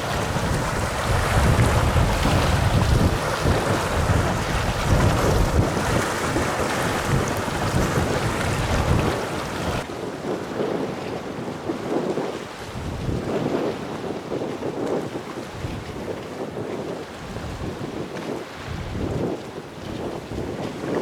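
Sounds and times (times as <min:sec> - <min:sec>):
steady rushing noise: 0:00.0 - 0:09.9
wind buffeting microphone: 0:00.0 - 0:21.0.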